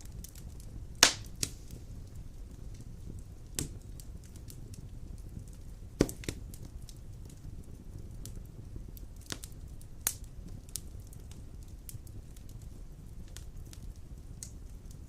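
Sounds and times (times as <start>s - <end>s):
fire crackling and popping: 0.0s - 15.0s
fire rumbling: 0.0s - 15.0s.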